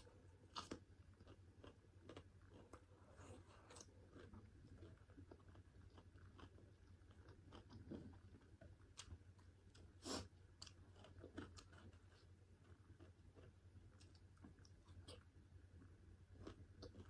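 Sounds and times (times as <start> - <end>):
close chewing and mouth sounds: 0.0 - 17.0.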